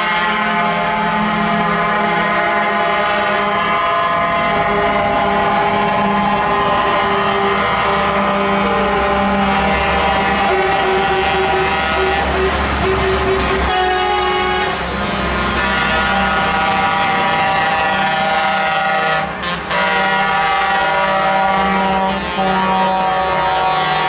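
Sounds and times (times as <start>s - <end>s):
truck air horns blaring: 0.0s - 24.0s
truck engines rumbling: 0.0s - 24.0s.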